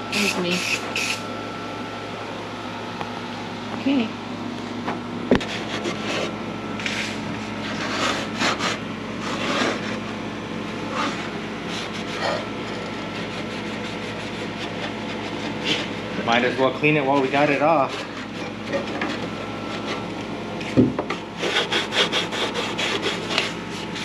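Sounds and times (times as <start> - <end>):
steady hum: 0.0 - 24.0
scraping and rubbing noises: 5.4 - 24.0.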